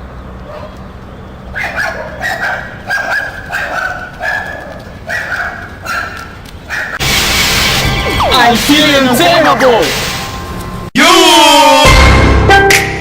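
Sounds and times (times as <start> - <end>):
small dog yapping: 1.6 - 7.0.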